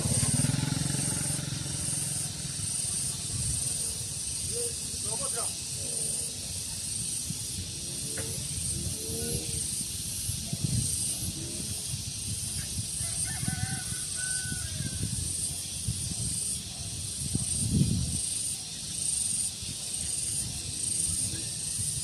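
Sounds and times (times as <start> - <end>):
wind buffeting microphone: 0.0 - 5.7, 6.4 - 18.6
faint bird calls: 0.0 - 9.9
high steady hiss: 0.0 - 22.0.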